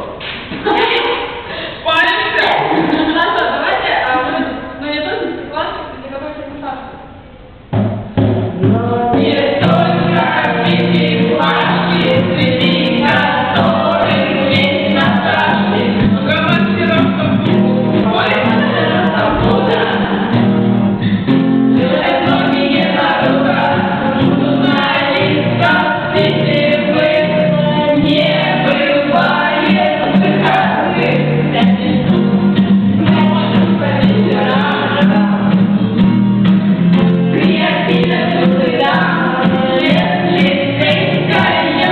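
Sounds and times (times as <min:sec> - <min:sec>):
group of people singing: 0:08.6 - 0:36.2, 0:36.9 - 0:41.9.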